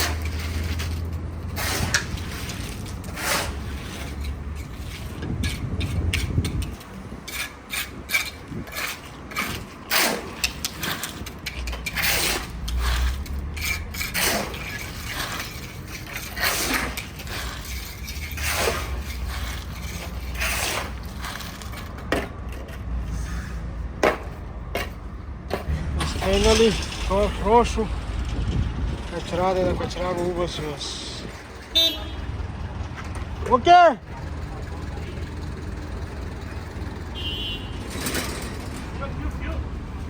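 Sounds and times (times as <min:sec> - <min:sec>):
scraping strokes: 0:00.0 - 0:22.0
hard parts clicking and knocking: 0:03.8 - 0:23.0, 0:37.8 - 0:39.0.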